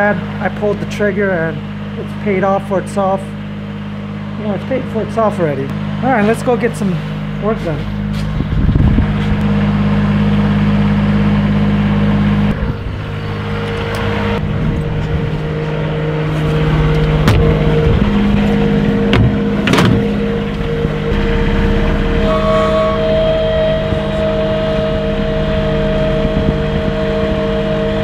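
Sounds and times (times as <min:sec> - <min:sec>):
diesel engine running: 0:00.0 - 0:28.0
sharp knocks: 0:17.2 - 0:17.8, 0:19.0 - 0:20.2.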